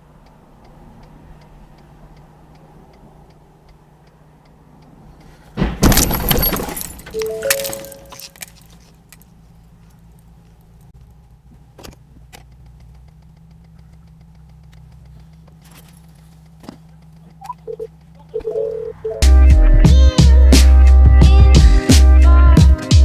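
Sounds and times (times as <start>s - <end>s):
low vehicle hum: 0.0s - 23.0s
sharp clicks: 0.2s - 5.3s, 11.8s - 18.6s
short beeps: 7.1s - 8.3s, 17.4s - 19.2s.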